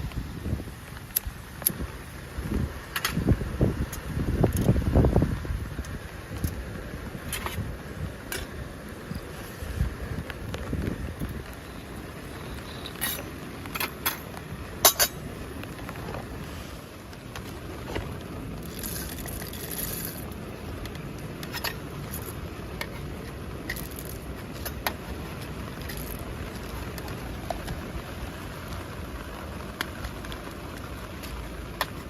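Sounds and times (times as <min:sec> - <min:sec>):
steady rain hiss: 0:00.0 - 0:32.0.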